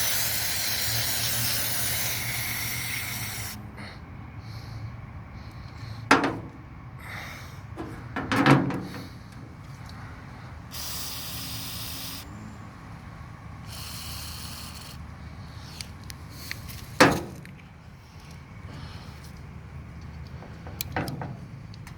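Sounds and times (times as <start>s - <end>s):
aerosol can spraying: 0.0s - 3.6s, 10.7s - 12.3s, 13.7s - 15.0s
sharp knocks: 6.1s - 6.6s.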